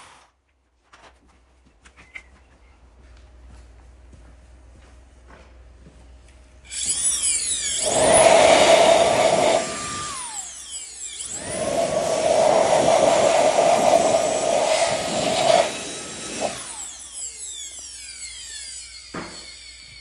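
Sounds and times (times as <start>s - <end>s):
mortising machine cutting wood: 6.7s - 20.0s.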